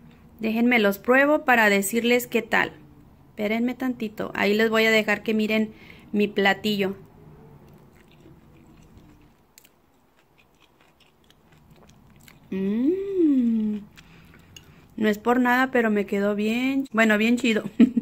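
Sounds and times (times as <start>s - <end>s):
woman chewing quietly: 7.0s - 15.0s
woman humming mmm: 12.5s - 14.0s.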